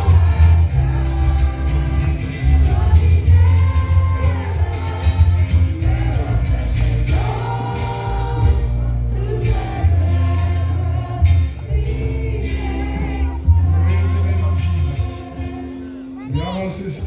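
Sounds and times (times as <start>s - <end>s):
steady bass: 0.0s - 16.0s
congregation singing a hymn: 0.0s - 16.2s.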